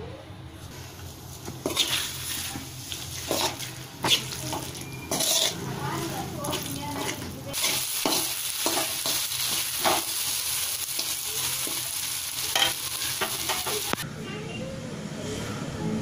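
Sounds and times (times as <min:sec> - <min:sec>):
metal spoon scraping wok: 0:00.6 - 0:10.2, 0:12.4 - 0:14.0
noodles sizzling in wok: 0:00.6 - 0:14.0.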